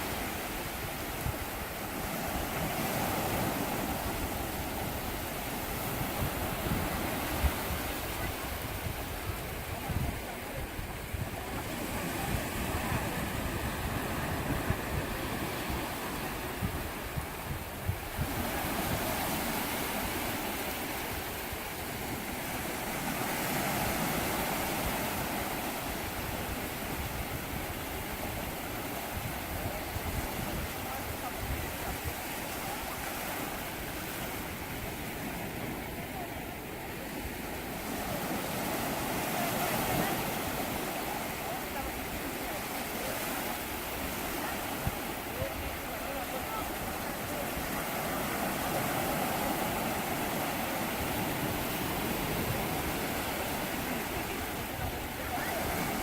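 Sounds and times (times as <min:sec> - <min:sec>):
waves washing onto beach: 0:00.0 - 0:56.0
wind rumbling on microphone: 0:00.0 - 0:56.0.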